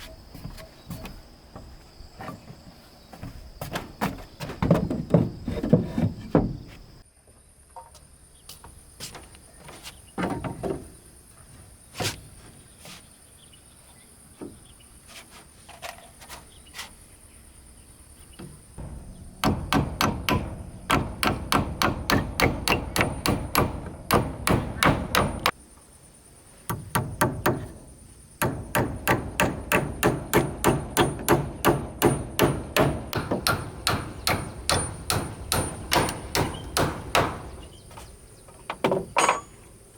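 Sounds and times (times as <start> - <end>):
hammer striking wood: 18.8 - 25.6, 26.7 - 27.8, 28.4 - 37.7.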